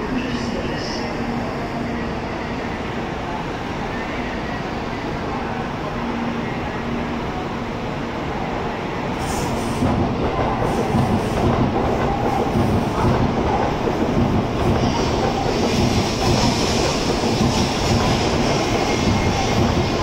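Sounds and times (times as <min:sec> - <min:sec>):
rumble of train wheels on rail: 0:00.0 - 0:20.0.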